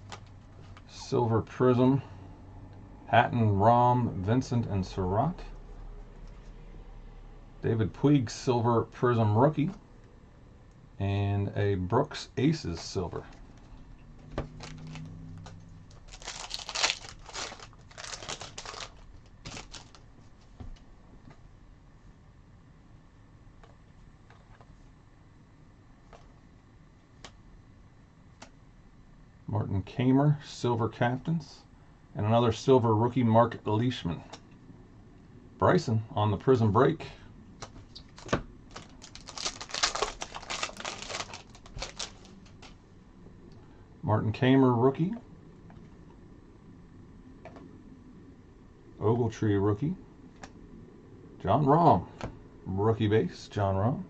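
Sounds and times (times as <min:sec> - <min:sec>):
cards being flipped through: 0:14.3 - 0:20.1, 0:37.6 - 0:42.8
foil wrapper tearing and crinkling: 0:14.6 - 0:15.1, 0:15.9 - 0:20.0, 0:38.0 - 0:42.7.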